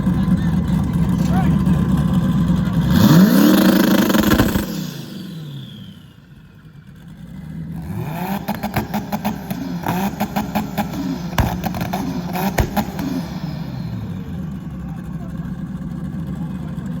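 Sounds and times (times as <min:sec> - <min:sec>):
car engine revving: 0:00.0 - 0:17.0
sharp exhaust pops: 0:03.3 - 0:05.0, 0:08.3 - 0:14.0.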